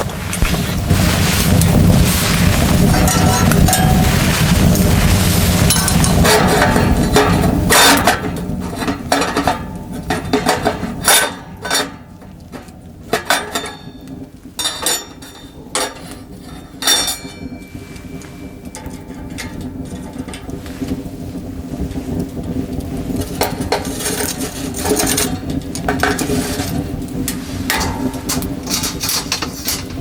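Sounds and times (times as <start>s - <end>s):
low rushing noise: 0.0s - 7.8s
camp dishes clinking: 13.2s - 20.5s, 27.6s - 30.0s.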